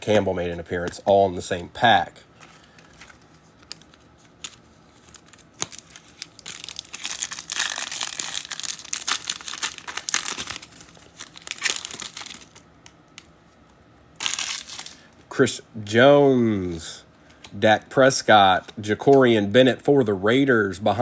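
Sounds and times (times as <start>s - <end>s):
foil wrapper tearing and crinkling: 2.6s - 12.6s, 14.2s - 15.1s.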